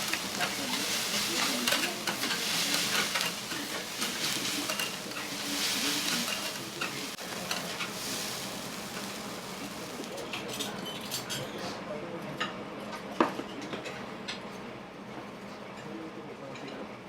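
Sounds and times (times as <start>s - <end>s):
metal spatulas scraping: 0.0s - 9.9s
food sizzling on griddle: 0.0s - 10.5s.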